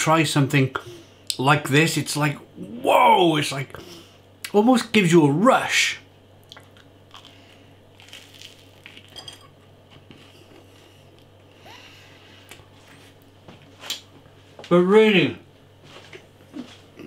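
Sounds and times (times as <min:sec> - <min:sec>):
biting and chewing toast: 0:06.5 - 0:09.2.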